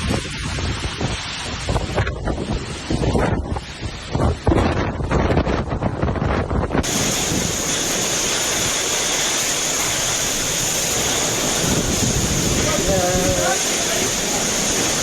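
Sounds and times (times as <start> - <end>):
wind buffeting microphone: 0.0 - 15.0
heavy rain hissing: 6.8 - 15.0.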